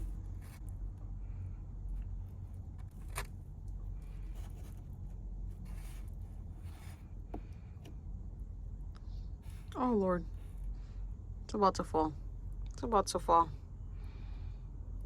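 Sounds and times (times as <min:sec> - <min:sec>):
steady low rumble: 0:00.0 - 0:15.0
packaging rustling and scraping: 0:04.0 - 0:07.1.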